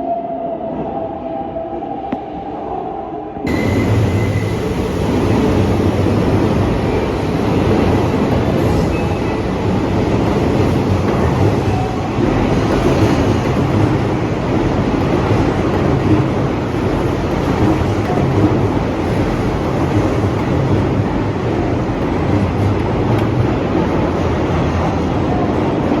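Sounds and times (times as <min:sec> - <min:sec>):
electric train rumbling past: 0:00.0 - 0:26.0.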